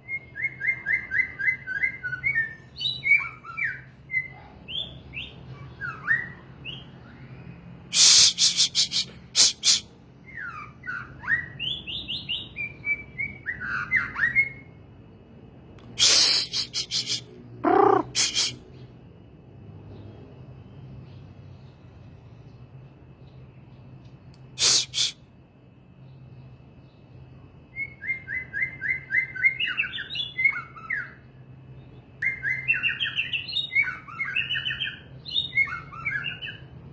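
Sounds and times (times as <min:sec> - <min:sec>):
songbird singing whistled trills: 0:00.0 - 0:14.8, 0:26.1 - 0:36.8
harsh rasping bird calls: 0:07.9 - 0:11.4, 0:15.8 - 0:18.9, 0:24.6 - 0:25.2.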